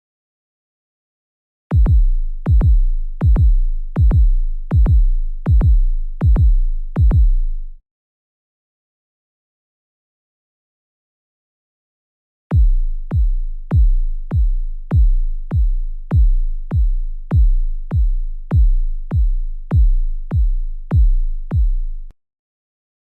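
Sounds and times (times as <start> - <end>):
deep electronic bass booms: 1.7 - 7.8, 12.5 - 22.1.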